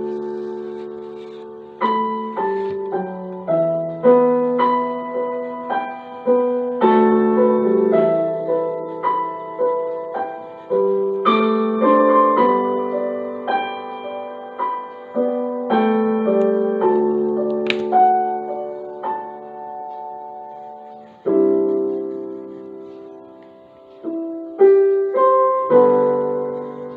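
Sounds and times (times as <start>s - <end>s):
gentle piano music: 0.0s - 26.9s.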